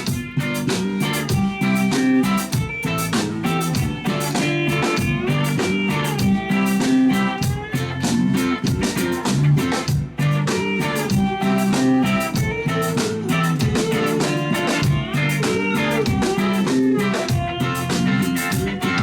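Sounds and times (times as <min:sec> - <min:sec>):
drum kit beat: 0:00.0 - 0:19.0
guitars: 0:00.0 - 0:19.0.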